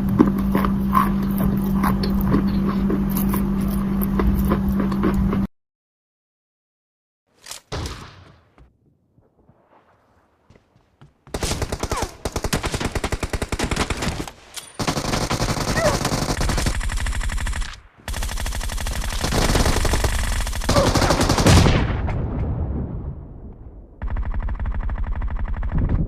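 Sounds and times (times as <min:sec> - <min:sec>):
automatic gunfire bursts: 0:11.3 - 0:21.8.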